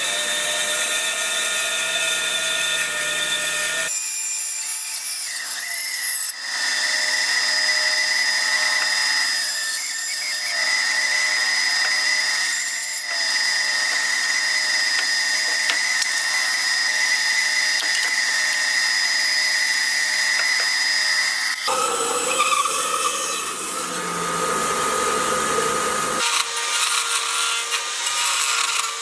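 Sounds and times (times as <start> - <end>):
power tool cutting wood: 0.0 - 29.0
power tool whining: 5.9 - 29.0.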